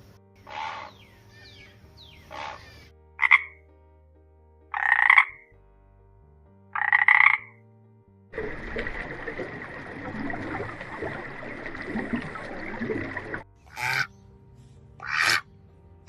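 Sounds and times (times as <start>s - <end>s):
animal calling: 2.2s - 3.5s, 13.7s - 14.1s, 15.0s - 15.5s.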